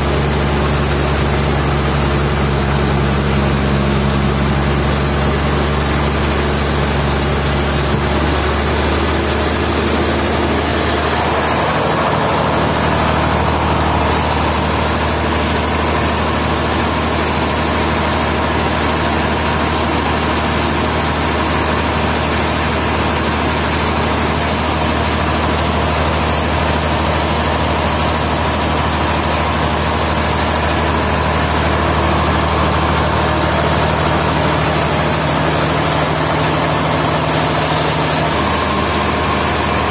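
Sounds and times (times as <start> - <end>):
higher steady hum: 0.0 - 17.6
sawmill machinery engine running: 0.0 - 39.9.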